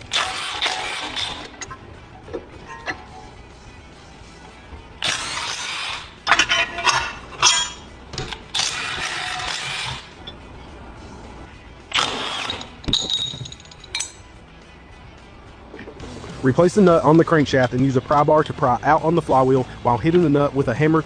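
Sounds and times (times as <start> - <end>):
metal tools clinking: 2.6 - 3.3, 6.3 - 8.7, 12.4 - 14.3.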